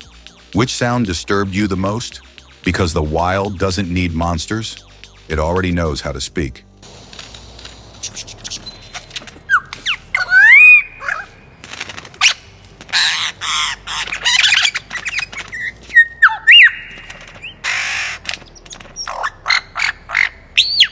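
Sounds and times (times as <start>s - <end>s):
bird rasping screeches: 8.0s - 20.9s
bird sliding whistles: 8.0s - 20.9s.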